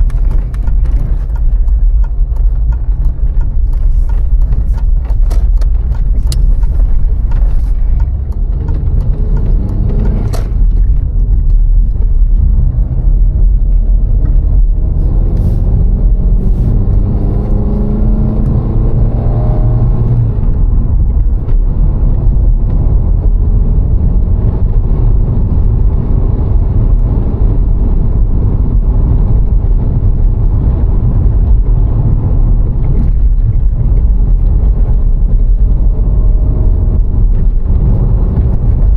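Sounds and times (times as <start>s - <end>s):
car engine accelerating: 0.0s - 38.9s
road rumble: 0.0s - 38.9s.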